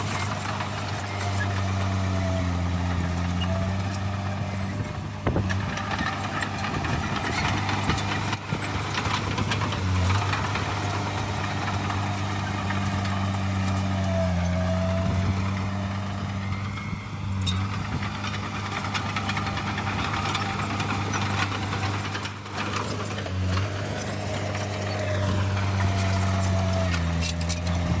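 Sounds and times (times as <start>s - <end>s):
heavy diesel engine running: 0.0s - 28.0s
metallic clatter: 17.4s - 28.0s.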